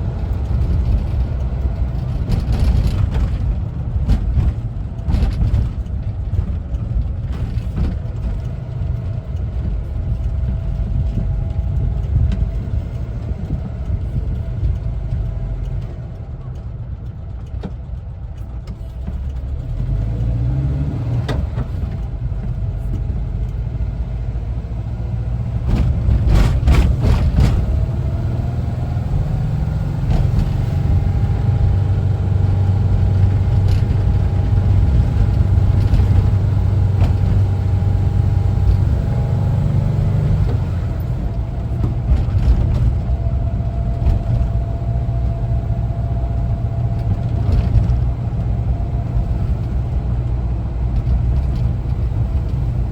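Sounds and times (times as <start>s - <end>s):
engine droning: 0.0s - 52.9s
brief clatter: 25.6s - 28.2s.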